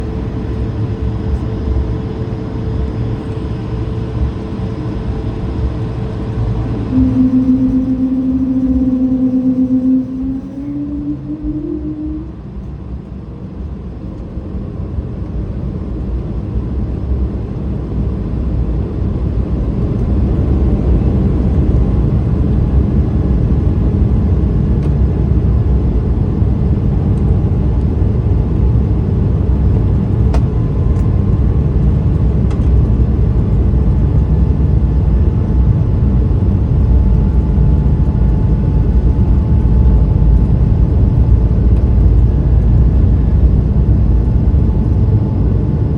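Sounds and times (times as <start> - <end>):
jet engines rumbling at takeoff: 0.0 - 12.7.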